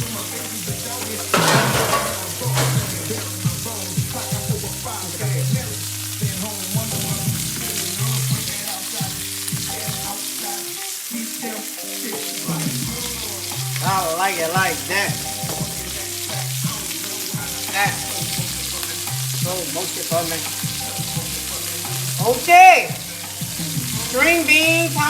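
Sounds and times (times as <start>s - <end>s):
background music: 0.0s - 25.0s
food sizzling in a hot pan: 0.0s - 25.0s.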